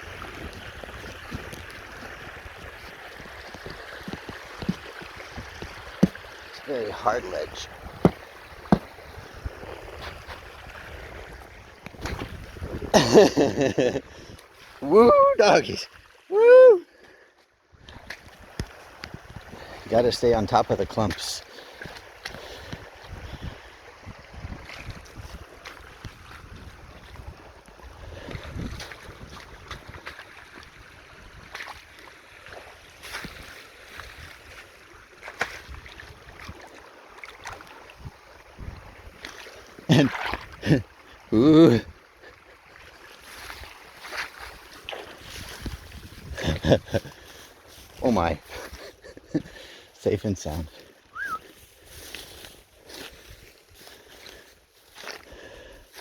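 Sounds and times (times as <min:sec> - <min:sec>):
wind rumbling on microphone: 0:00.0 - 0:06.3, 0:07.3 - 0:13.0, 0:22.3 - 0:31.6, 0:38.0 - 0:39.3, 0:45.2 - 0:47.1
rough outdoor noise: 0:00.0 - 0:15.9, 0:43.2 - 0:56.0
boots crunching on ice: 0:03.6 - 0:06.3, 0:08.0 - 0:09.0.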